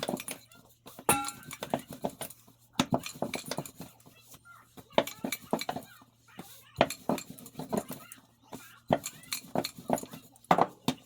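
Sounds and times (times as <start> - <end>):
utensils clinking against dishes: 1.0 - 4.0, 4.9 - 5.9, 6.8 - 8.3, 8.9 - 10.9.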